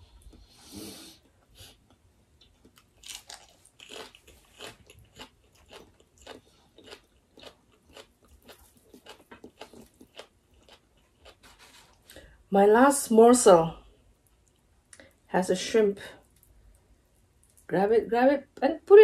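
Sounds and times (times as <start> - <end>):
people chewing food: 0.0 - 12.3.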